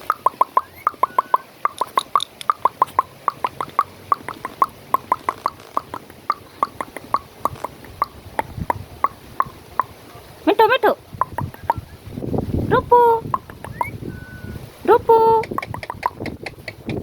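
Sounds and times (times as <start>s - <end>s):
rapid sharp clicks: 0.0s - 8.5s.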